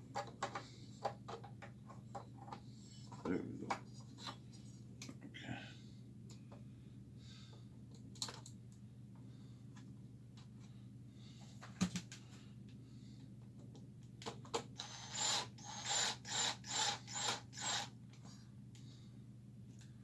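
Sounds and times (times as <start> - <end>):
rasping ratchet strokes: 14.8 - 17.9.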